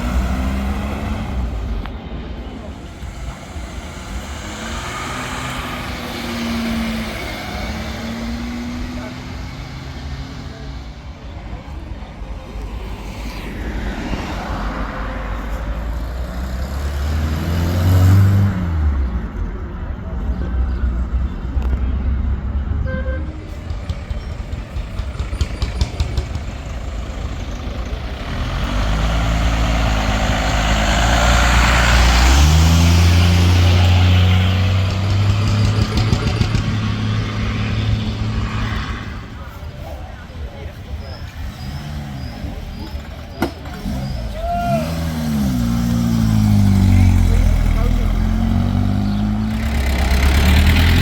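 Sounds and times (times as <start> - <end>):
vintage vehicle engines driving past: 0.0 - 51.0.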